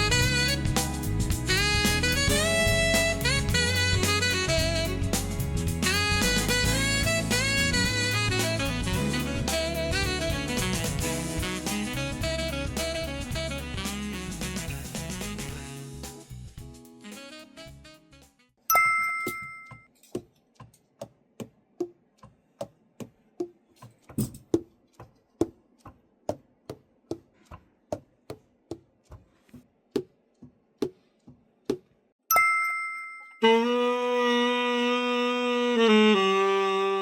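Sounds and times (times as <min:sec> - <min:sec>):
two-tone chime: 0:18.7 - 0:19.9, 0:32.3 - 0:33.5.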